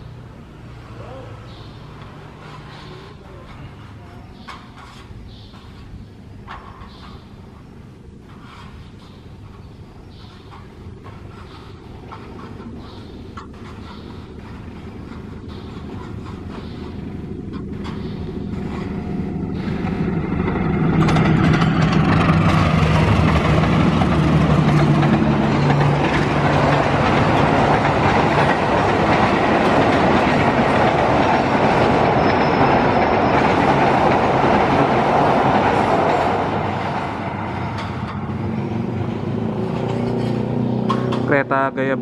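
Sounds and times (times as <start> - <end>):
train wheels rumbling and clattering: 1.9 - 41.8
locomotive engine hum: 9.0 - 42.0.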